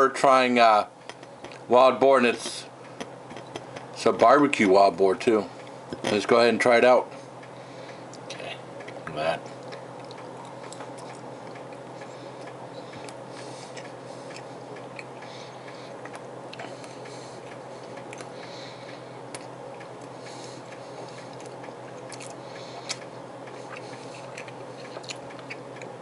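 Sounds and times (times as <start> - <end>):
steady low hum: 0.0 - 26.0
person chewing with wet smacks: 1.1 - 1.7, 3.0 - 3.9, 8.1 - 26.0.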